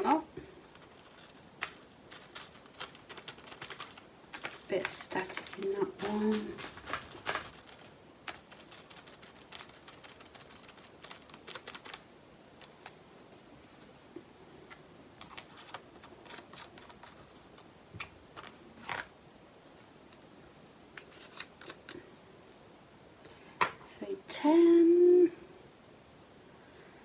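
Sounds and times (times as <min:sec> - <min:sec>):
plastic beads clicking and rattling: 0:00.6 - 0:13.0, 0:15.2 - 0:17.7.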